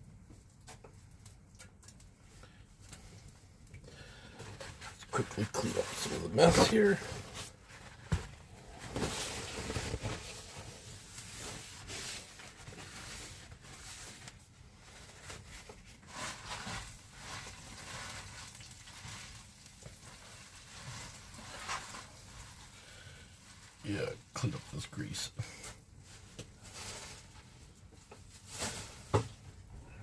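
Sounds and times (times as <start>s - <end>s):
rustling and wiping: 4.6s - 22.8s.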